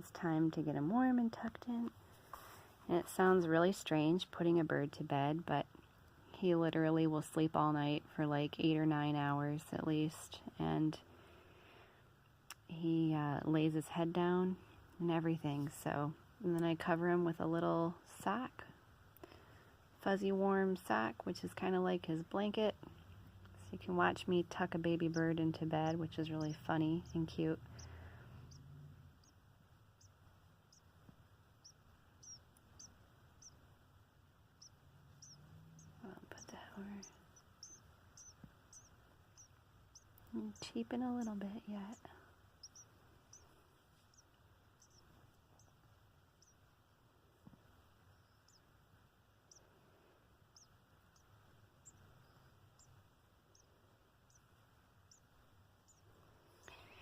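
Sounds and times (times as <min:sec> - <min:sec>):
nestling sparrow cheeping: 0:21.6 - 0:31.0, 0:31.6 - 0:33.7, 0:34.5 - 0:45.8, 0:46.4 - 0:46.6, 0:48.0 - 0:48.7, 0:50.5 - 0:57.0.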